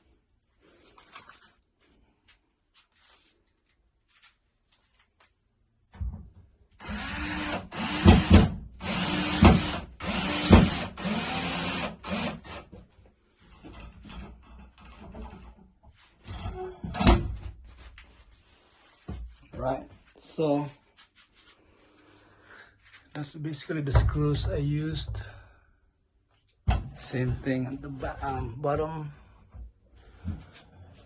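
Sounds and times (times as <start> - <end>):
power drill driving screws: 6.8 - 12.7.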